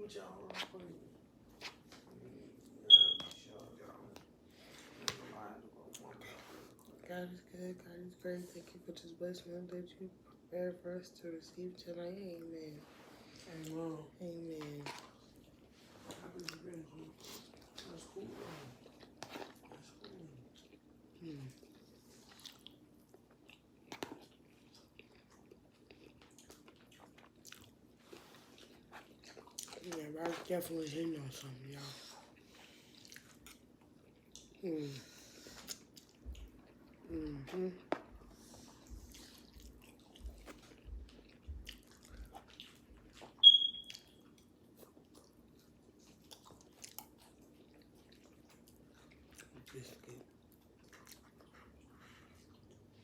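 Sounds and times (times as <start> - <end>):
soft chewing: 0.0 - 53.0
high-pitched squeak: 2.9 - 3.4, 43.4 - 43.9.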